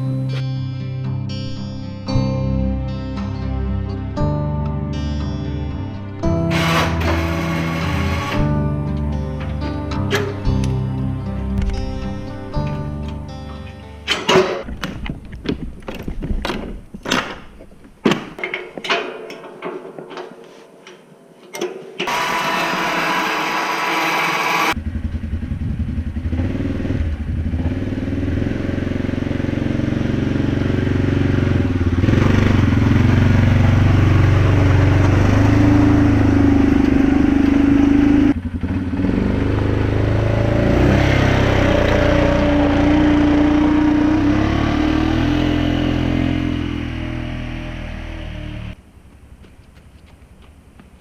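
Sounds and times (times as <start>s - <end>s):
atv engine running: 6.3s - 13.4s, 22.1s - 48.8s.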